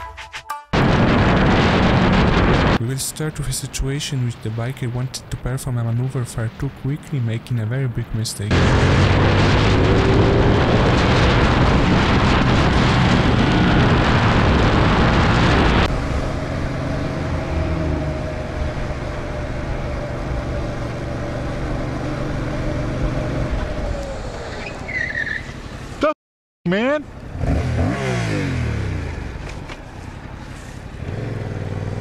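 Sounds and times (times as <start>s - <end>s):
wind noise on microphone: 0.8s - 2.8s, 8.8s - 16.5s
motorcycle engine: 8.5s - 26.0s, 27.1s - 32.0s.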